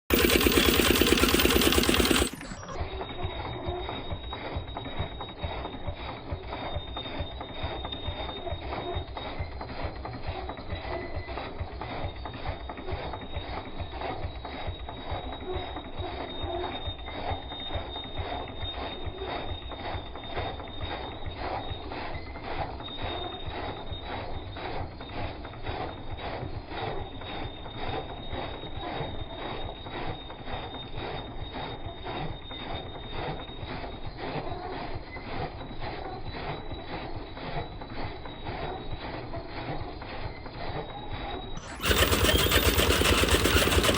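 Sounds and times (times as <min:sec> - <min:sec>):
engine running: 0:00.0 - 0:02.8, 0:41.6 - 0:43.9.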